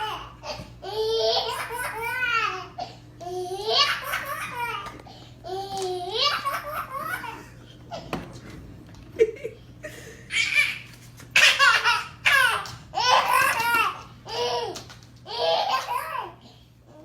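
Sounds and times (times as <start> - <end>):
young child laughing: 3.4 - 5.0, 5.8 - 8.2, 9.2 - 14.6.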